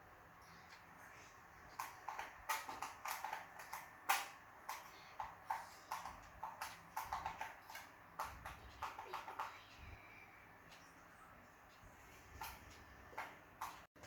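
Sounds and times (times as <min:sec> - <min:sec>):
sharp taps and knocks: 0:01.7 - 0:09.6.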